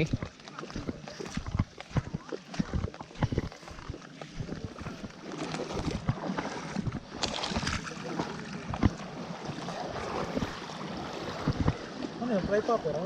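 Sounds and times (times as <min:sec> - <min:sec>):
water lapping against a boat: 0:00.0 - 0:13.0
wind on the microphone: 0:11.2 - 0:11.9.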